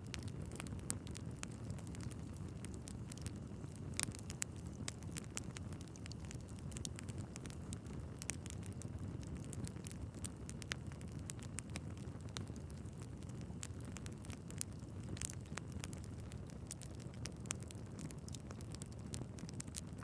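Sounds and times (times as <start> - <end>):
fire flames rumbling: 0.0 - 20.0
logs crackling and popping: 0.0 - 20.0.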